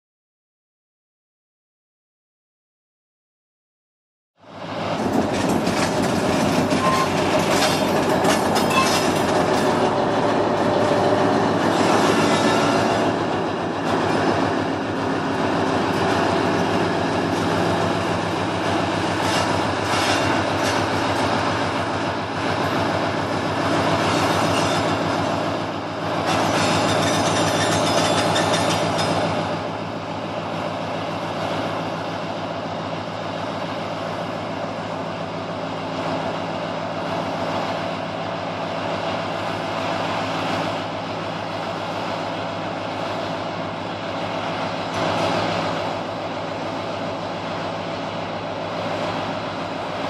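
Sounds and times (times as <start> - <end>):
diesel locomotive engine running: 4.4 - 50.0
wagon wheels clacking over rail joints: 5.0 - 21.9, 22.6 - 29.8
train wheels squealing: 6.5 - 9.8, 11.7 - 13.2, 24.0 - 25.3, 26.3 - 29.4.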